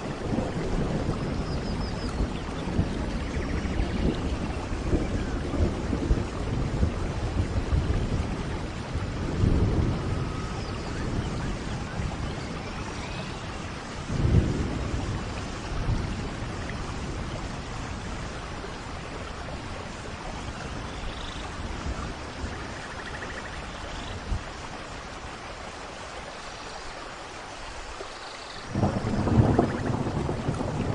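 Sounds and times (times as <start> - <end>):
deep rolling thunder: 0.0 - 19.5, 28.7 - 30.9
steady rain: 0.0 - 30.9.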